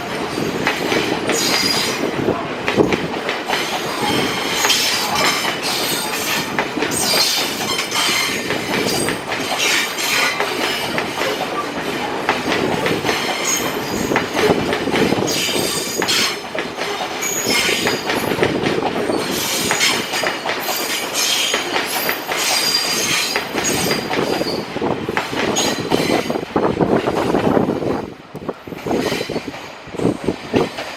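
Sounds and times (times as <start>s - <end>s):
train wheels on rails: 0.0s - 30.9s
clacks over rail joints: 2.6s - 30.9s
high wheel squeal: 3.9s - 10.9s, 13.2s - 14.2s, 15.3s - 16.4s, 17.2s - 18.0s, 20.7s - 24.7s.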